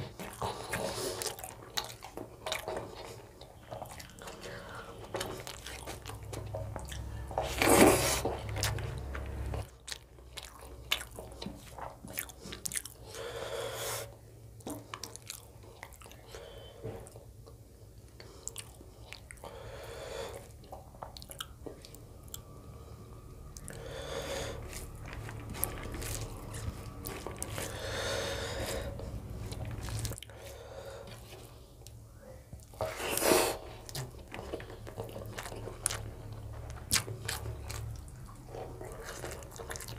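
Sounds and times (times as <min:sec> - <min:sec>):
person chewing and biting: 0:00.0 - 0:13.1, 0:14.7 - 0:16.2, 0:23.5 - 0:30.3, 0:33.8 - 0:39.9.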